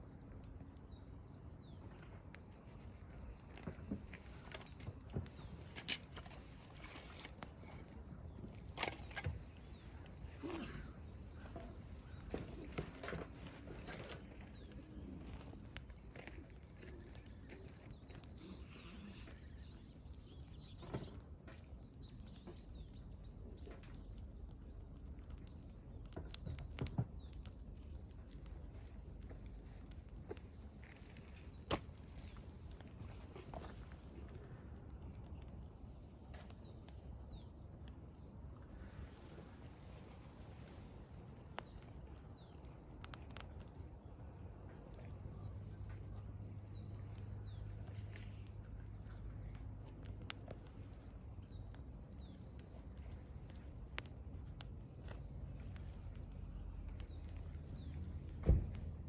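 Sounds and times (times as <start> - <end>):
small birds chirping: 0.0 - 59.0
wood fire crackling and popping: 0.0 - 59.0
faint bird chirps: 16.2 - 29.9.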